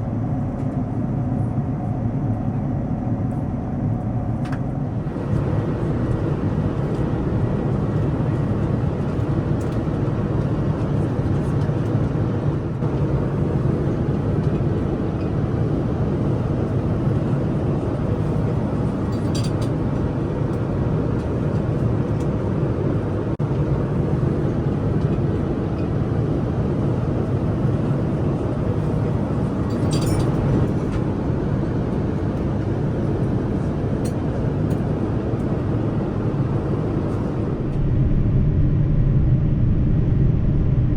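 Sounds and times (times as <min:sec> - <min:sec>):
airliner cabin rumble: 0:00.0 - 0:40.9.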